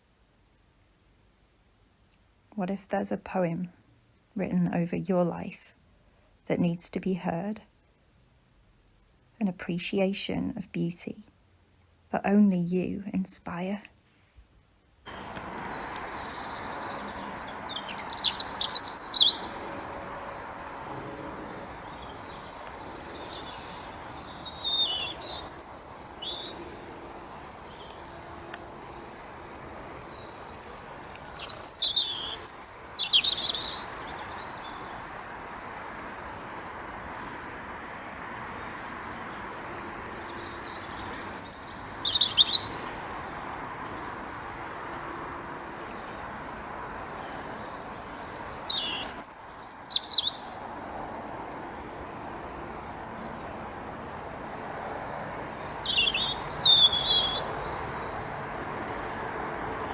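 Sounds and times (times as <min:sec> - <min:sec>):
background hiss: 0:00.0 - 0:59.9
robin singing: 0:15.1 - 0:36.6, 0:38.5 - 0:59.9.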